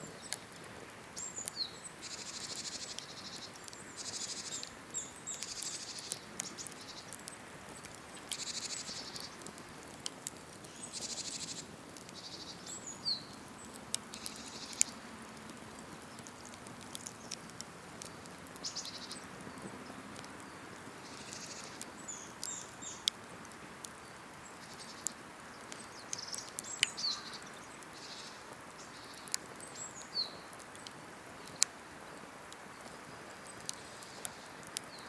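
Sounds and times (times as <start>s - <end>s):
campfire crackling and popping: 0.0s - 35.0s
small birds chirping: 0.0s - 35.0s
soft steady hiss: 0.0s - 35.0s.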